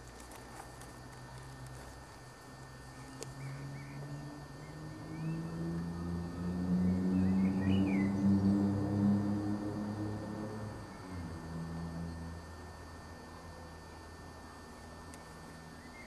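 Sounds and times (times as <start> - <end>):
low mechanical drone: 0.0 - 16.0.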